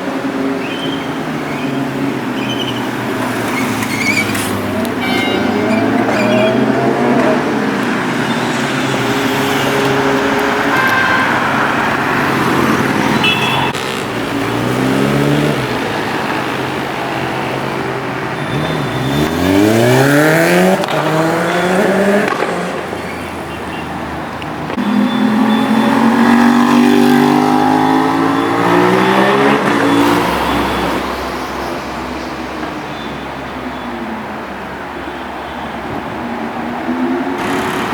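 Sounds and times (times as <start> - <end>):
motorcycle engines accelerating past: 2.1 - 23.0, 24.7 - 31.2, 37.4 - 37.9.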